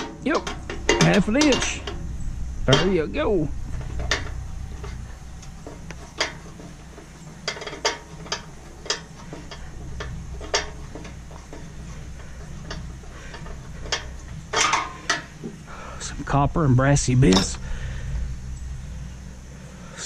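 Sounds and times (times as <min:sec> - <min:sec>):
metal parts clinking: 0:00.0 - 0:15.4
low steady hum: 0:00.0 - 0:20.0.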